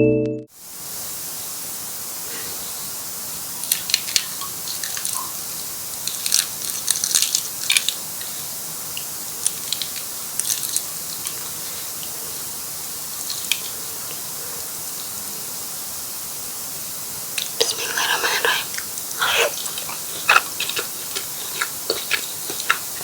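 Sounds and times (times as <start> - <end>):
steady hiss: 0.6 - 23.0
fried food crackling and crunching: 3.5 - 14.2, 17.3 - 23.0.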